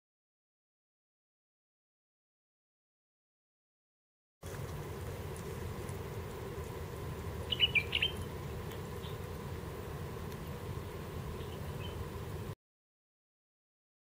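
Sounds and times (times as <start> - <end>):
outdoor ambience hiss: 4.4 - 12.6
faint bird call: 7.4 - 9.3, 11.3 - 12.1
bird sharp high chirps: 7.5 - 8.3, 11.4 - 12.0.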